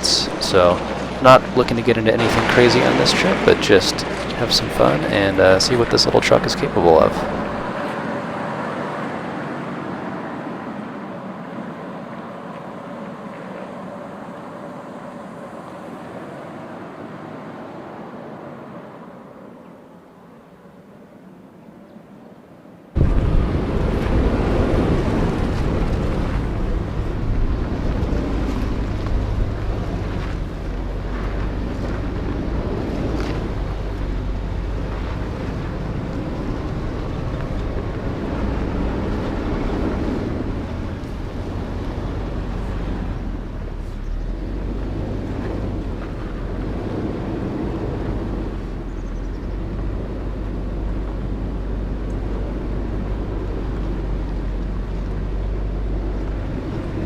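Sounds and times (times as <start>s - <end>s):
truck engine and tyres running: 0.0s - 21.4s, 22.9s - 57.0s.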